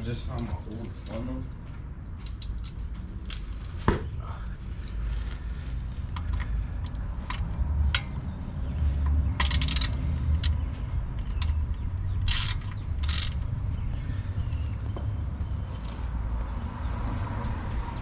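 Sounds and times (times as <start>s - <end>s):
ratchet wrench clicking: 9.4s - 10.6s, 11.2s - 13.5s.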